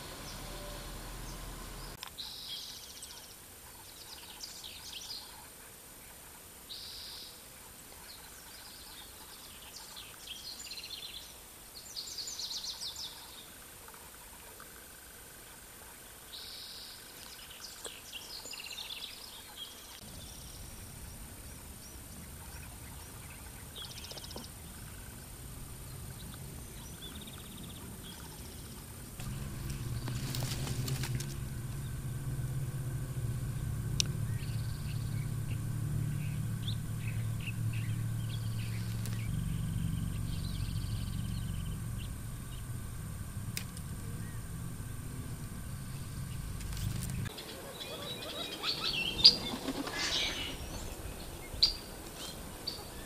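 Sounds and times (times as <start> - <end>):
birds chirping: 0.0 - 5.4, 16.0 - 53.0
steady hiss: 27.9 - 47.4
low rumble: 29.1 - 47.3.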